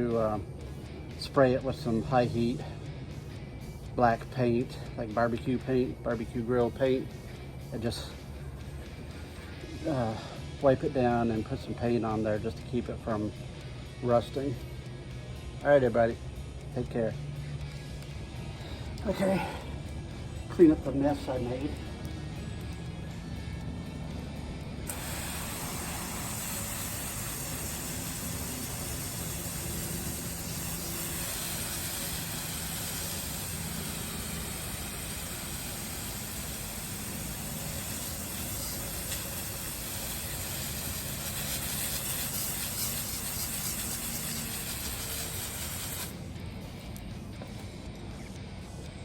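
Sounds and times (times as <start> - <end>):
low motor hum: 16.2 - 49.0.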